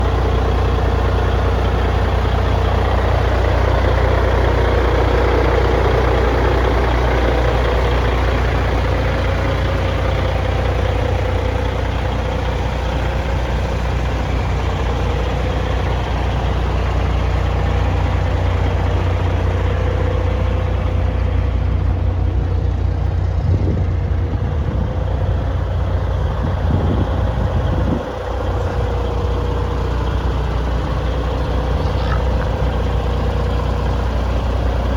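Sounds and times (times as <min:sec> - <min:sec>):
diesel truck engine idling: 0:00.0 - 0:34.9
steady engine whine: 0:00.0 - 0:34.9.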